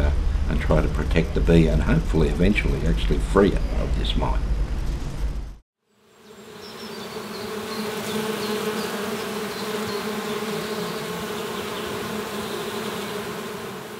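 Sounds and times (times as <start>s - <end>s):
honeybees buzzing: 5.8s - 13.9s.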